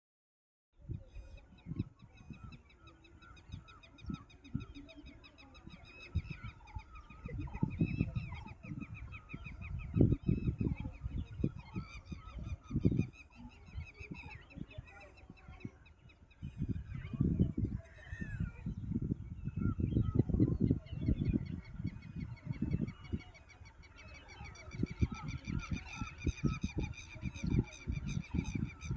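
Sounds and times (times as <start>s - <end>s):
geese and waterfowl calling: 21.0s - 28.9s.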